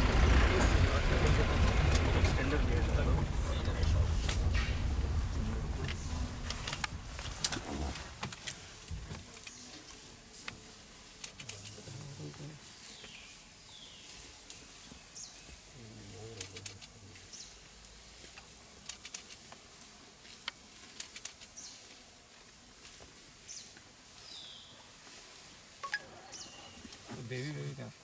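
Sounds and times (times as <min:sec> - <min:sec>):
birds chirping: 0:00.0 - 0:08.2, 0:25.8 - 0:27.0.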